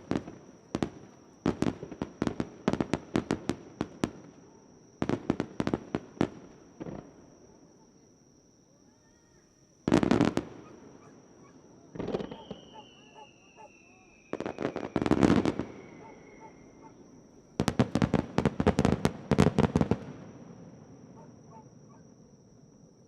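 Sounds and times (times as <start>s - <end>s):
fireworks crackling: 11.9s - 13.1s, 14.2s - 16.2s, 17.6s - 20.5s.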